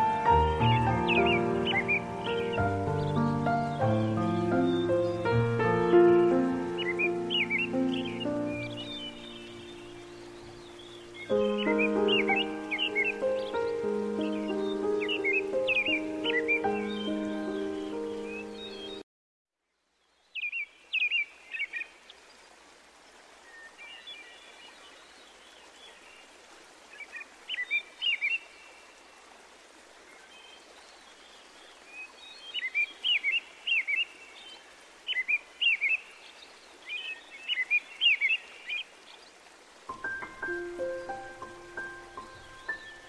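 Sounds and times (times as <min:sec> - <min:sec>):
bird chirping: 0:00.0 - 0:19.0, 0:20.0 - 0:22.2, 0:31.8 - 0:43.0
music: 0:00.0 - 0:19.0, 0:39.9 - 0:43.0
outdoor ambient hiss: 0:00.0 - 0:19.0, 0:19.6 - 0:43.0.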